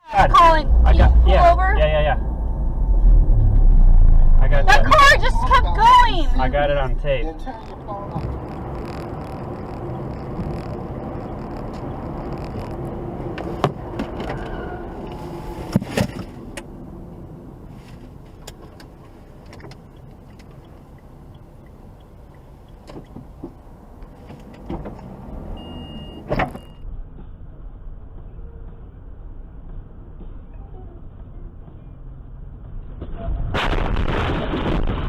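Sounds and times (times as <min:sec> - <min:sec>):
car engine and road noise: 0:00.0 - 0:35.0
sharp clicks and knocks: 0:07.6 - 0:14.4.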